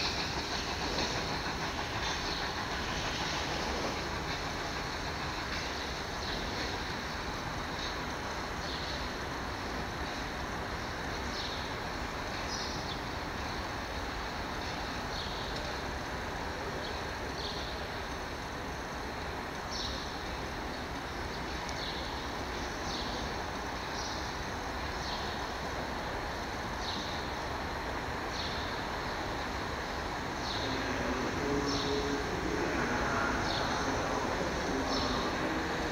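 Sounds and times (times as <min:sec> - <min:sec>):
train running noise: 0:00.0 - 0:35.9.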